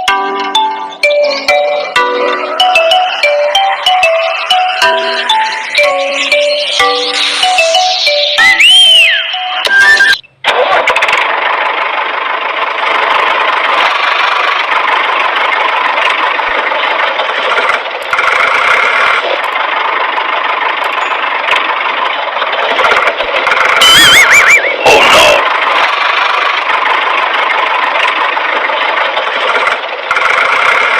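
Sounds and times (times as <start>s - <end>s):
tractor engine running: 0.0s - 30.9s
warbling whistle tones: 1.0s - 10.2s, 23.8s - 25.4s.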